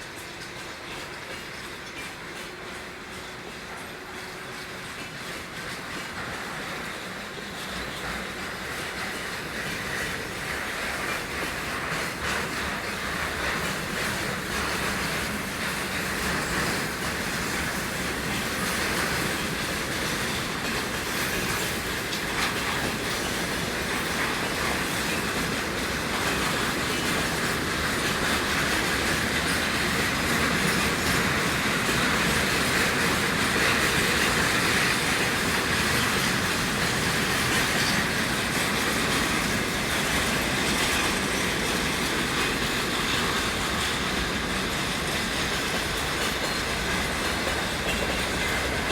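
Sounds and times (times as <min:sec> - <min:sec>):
freight train wheels clickety-clack: 0:00.0 - 0:48.9.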